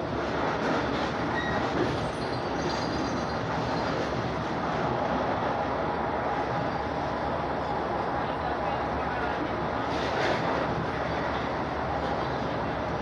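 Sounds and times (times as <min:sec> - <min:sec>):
train running heard inside: 0:00.0 - 0:13.0
faint high wheel squeals: 0:01.3 - 0:04.0.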